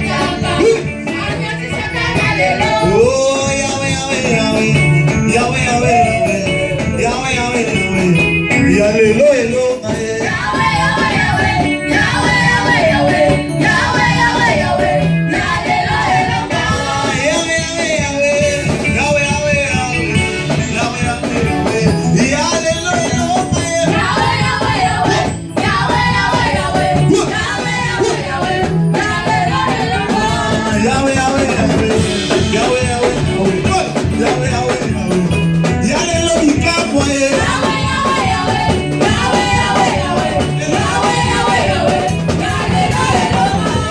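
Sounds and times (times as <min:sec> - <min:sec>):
choir singing: 0:00.0 - 0:03.2, 0:10.2 - 0:17.6, 0:23.6 - 0:32.8, 0:37.2 - 0:43.9
band with bass and guitar: 0:00.0 - 0:43.9.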